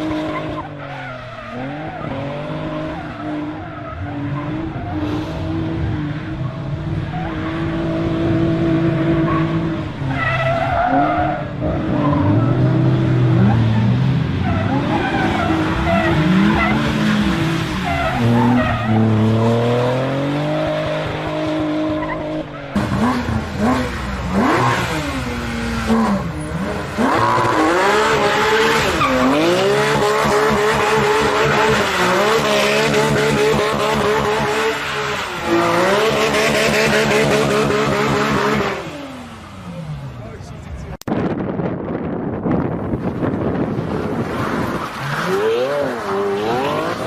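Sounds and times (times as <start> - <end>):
tyres squealing and skidding: 0.0 - 40.6, 43.5 - 47.0
car engine revving hard: 11.6 - 39.4, 43.4 - 47.0.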